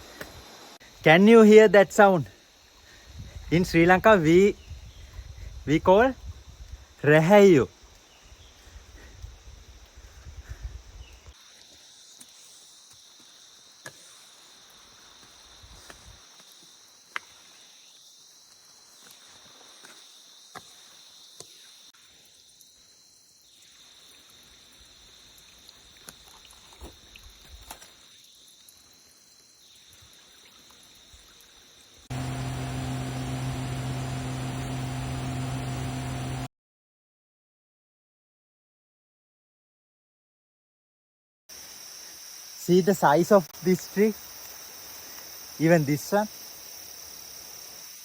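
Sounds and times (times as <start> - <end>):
cicadas singing: 31.8 - 36.5, 41.6 - 48.0
steady low hum: 32.1 - 36.5.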